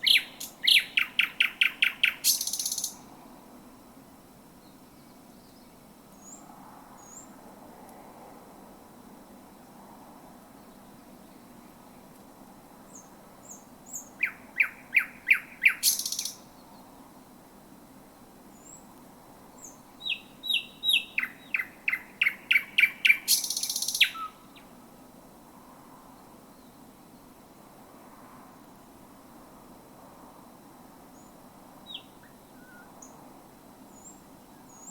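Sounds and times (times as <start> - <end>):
nightingale singing: 0.0 - 3.1, 12.9 - 16.9, 19.6 - 24.8, 31.2 - 33.2, 33.9 - 34.9
faint steady low noise: 0.0 - 34.9.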